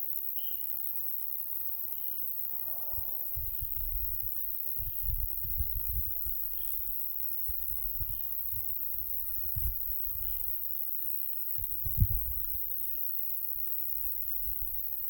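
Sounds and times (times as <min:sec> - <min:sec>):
wind buffeting microphone: 0:03.3 - 0:06.8, 0:07.5 - 0:10.4, 0:11.6 - 0:12.6.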